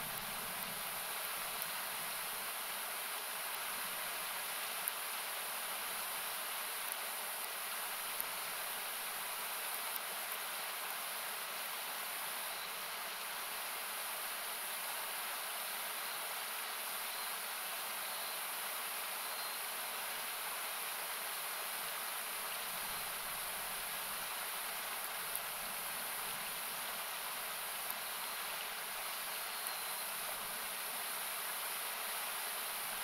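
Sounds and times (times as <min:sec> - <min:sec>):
campfire crackling: 0:00.0 - 0:11.5, 0:22.1 - 0:33.0
river rushing: 0:00.0 - 0:33.0.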